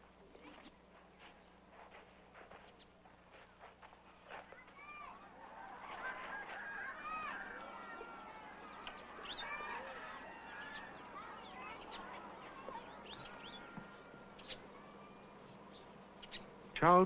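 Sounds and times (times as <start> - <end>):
birds chirping: 0.0 - 17.0
faint steady hum: 0.0 - 17.0.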